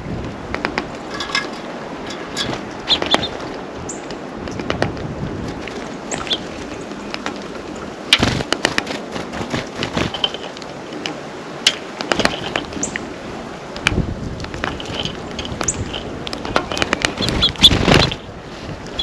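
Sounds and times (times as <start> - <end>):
birds pecking at a feeder: 0.5 - 19.0
high bird chirps: 2.8 - 4.0, 6.1 - 6.5, 17.1 - 18.3.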